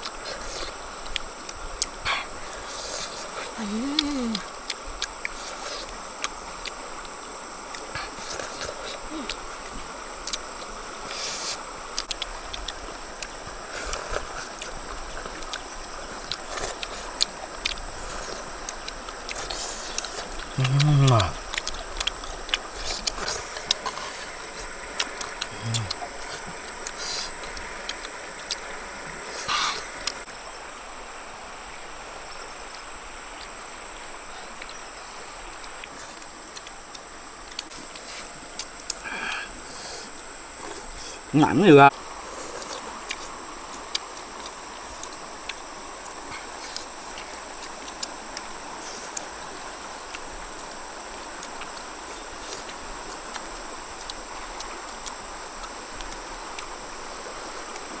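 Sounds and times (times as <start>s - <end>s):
faint ticks: 0.0s - 30.3s, 42.3s - 58.0s
background hiss: 0.0s - 58.0s
insects chirring: 0.0s - 58.0s.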